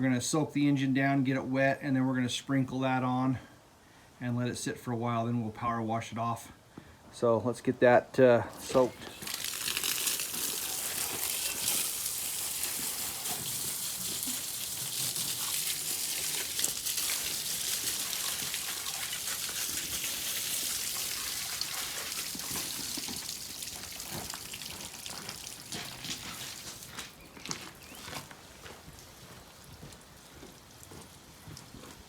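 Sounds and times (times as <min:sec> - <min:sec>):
water spraying from hose: 0:08.5 - 0:27.8, 0:28.4 - 0:32.0.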